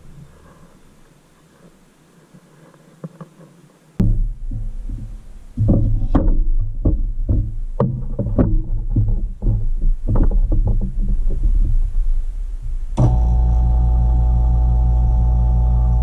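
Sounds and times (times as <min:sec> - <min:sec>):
vacuum pump humming: 0:13.0 - 0:16.0.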